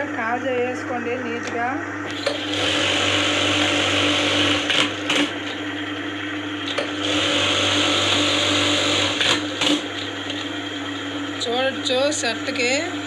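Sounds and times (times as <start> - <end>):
machine motor hum: 0.0 - 13.0
sewing machine stitching: 2.1 - 5.6, 6.6 - 10.4.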